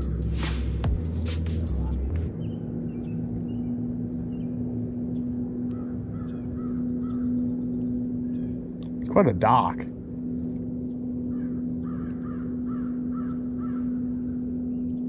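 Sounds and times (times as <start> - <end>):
background music: 0.0 - 2.4
birds calling faintly: 0.0 - 15.0
steady low hum: 0.0 - 15.0.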